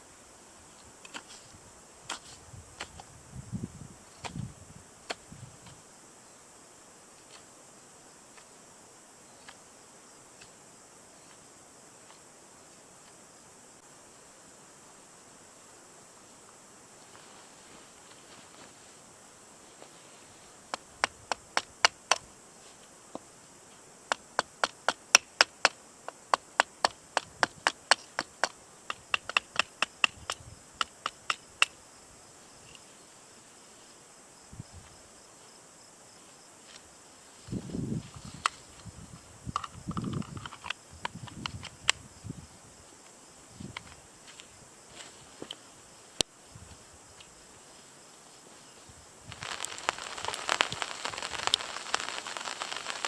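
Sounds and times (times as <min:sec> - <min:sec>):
rustling handling noise: 0:17.0 - 0:20.5.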